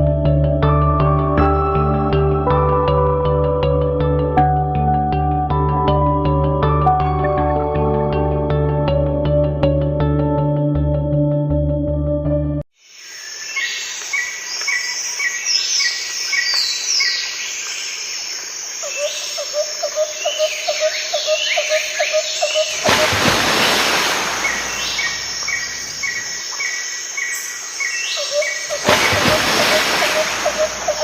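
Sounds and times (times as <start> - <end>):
birds chirping and whistling: 24.4 - 31.0.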